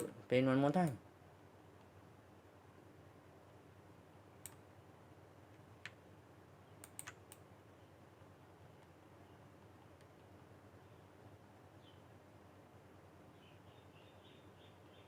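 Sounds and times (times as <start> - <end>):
computer mouse and keyboard clicks: 6.8 - 7.4.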